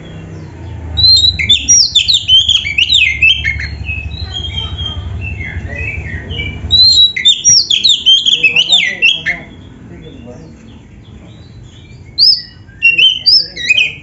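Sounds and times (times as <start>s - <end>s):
songbird singing: 0.0s - 14.0s.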